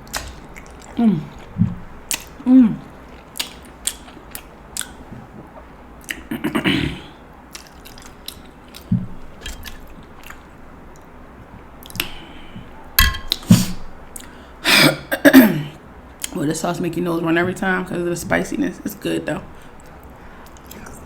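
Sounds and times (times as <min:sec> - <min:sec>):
mouth chewing with wet clicks: 0:00.0 - 0:06.3, 0:07.5 - 0:11.2, 0:11.8 - 0:12.3, 0:14.2 - 0:14.4, 0:19.8 - 0:21.0.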